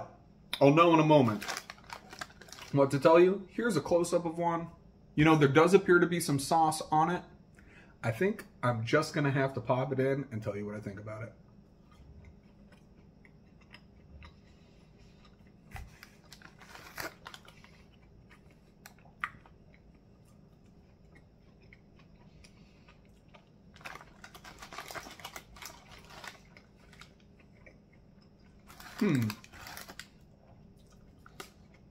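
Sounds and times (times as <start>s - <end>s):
chewing crunchy food: 11.7s - 31.9s.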